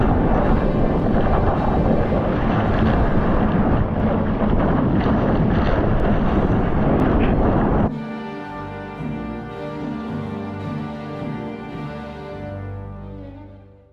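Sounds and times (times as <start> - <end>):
wind buffeting microphone: 0.0 - 8.0
ocean surf: 0.0 - 8.4.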